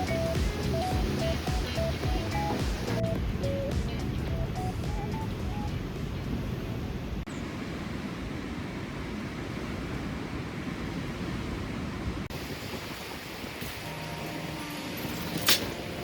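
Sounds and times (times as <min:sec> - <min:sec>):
strong wind on microphone: 0:09.4 - 0:13.9.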